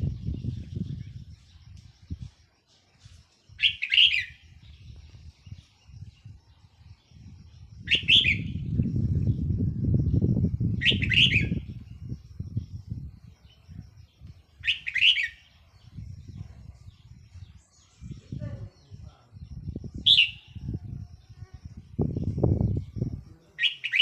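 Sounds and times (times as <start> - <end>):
bird singing warbled phrases: 3.5 - 24.0
low rumbling noise: 7.2 - 13.3.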